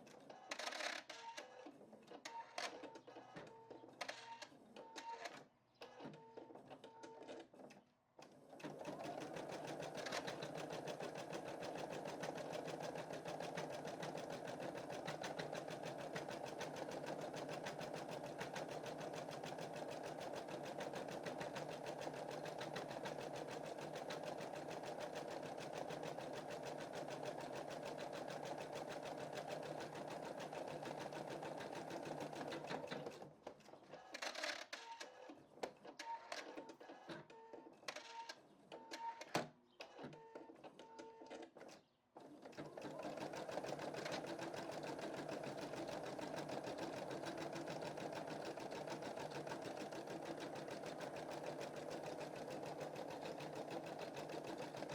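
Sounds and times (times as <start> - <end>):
embroidery machine stitching: 8.6 - 33.3, 42.2 - 54.9.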